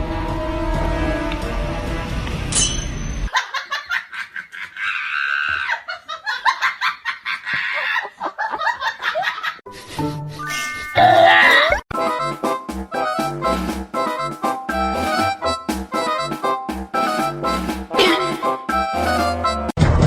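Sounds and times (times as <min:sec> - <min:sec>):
high-pitched laughter: 0:03.3 - 0:09.6
music playing: 0:11.9 - 0:20.0.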